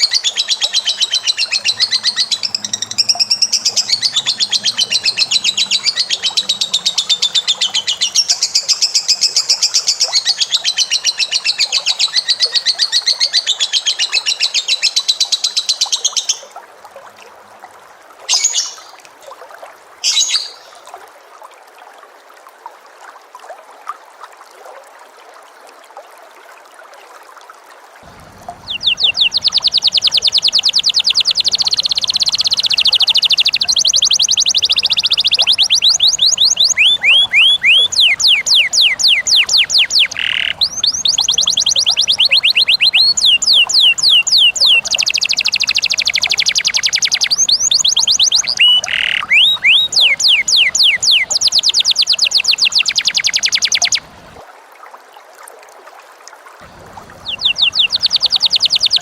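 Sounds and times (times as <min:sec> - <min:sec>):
short bird calls: 0:00.0 - 0:13.0, 0:28.1 - 0:54.3, 0:56.7 - 0:59.0
bird singing fast trill: 0:00.0 - 0:16.1, 0:28.1 - 0:54.1, 0:56.8 - 0:59.0.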